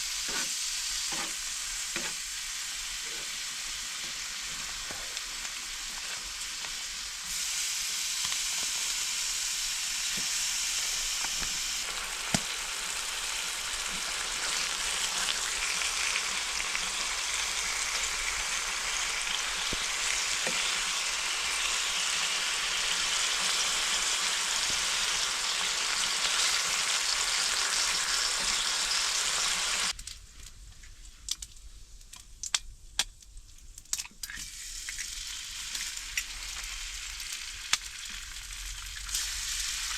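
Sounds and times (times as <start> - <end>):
food sizzling in a pan: 0.0 - 30.0, 34.3 - 39.9
sharp clicks and crackles: 31.2 - 39.3.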